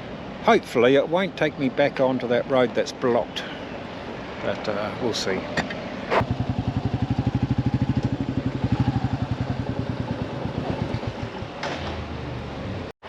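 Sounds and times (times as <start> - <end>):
motorcycle engine thudding: 5.6 - 12.1.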